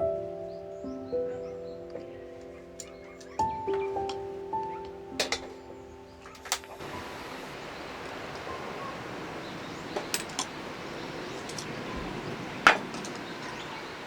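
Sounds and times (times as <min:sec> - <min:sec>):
small clicks: 0:06.4 - 0:14.0
river rushing: 0:06.8 - 0:14.0.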